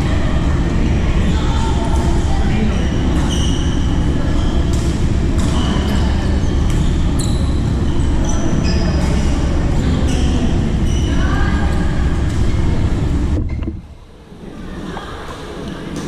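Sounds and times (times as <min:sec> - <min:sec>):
steady din of indoor hall: 0:00.0 - 0:16.0
shoes squeaking on court floor: 0:02.7 - 0:11.3.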